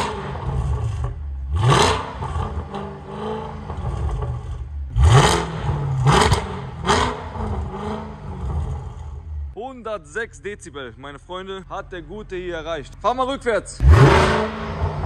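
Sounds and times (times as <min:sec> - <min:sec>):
loud car engine revving: 0:00.0 - 0:09.5, 0:13.8 - 0:15.0.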